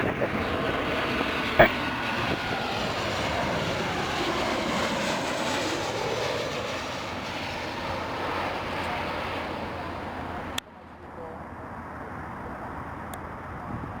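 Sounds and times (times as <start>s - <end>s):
jet engines passing: 0.0s - 10.6s.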